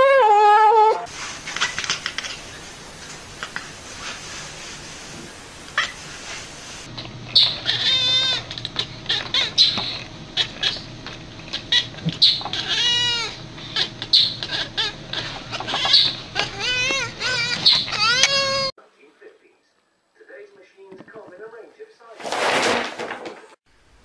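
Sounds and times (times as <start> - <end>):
animal trilling calls: 7.2 - 18.7.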